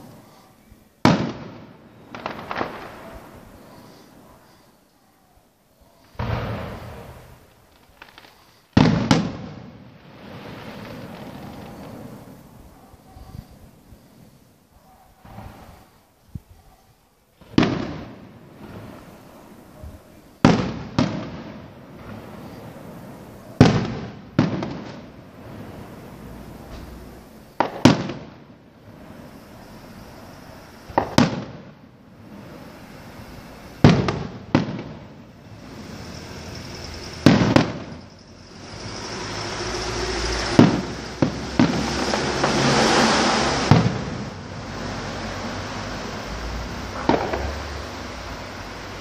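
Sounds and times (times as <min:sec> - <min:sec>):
firework shells bursting: 0:01.0 - 0:04.0, 0:23.6 - 0:29.2, 0:29.9 - 0:48.8
rushing noise: 0:35.4 - 0:37.3, 0:37.9 - 0:49.0.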